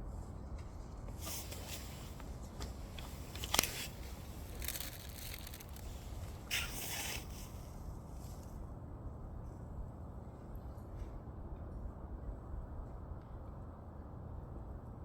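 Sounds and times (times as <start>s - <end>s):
fire popping: 3.0s - 6.1s
wood fire crackling: 3.0s - 6.1s.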